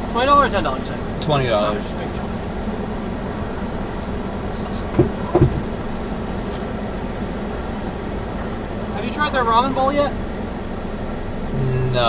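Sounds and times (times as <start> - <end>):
car cabin low hum: 0.0 - 12.0
short knocks: 4.9 - 5.8.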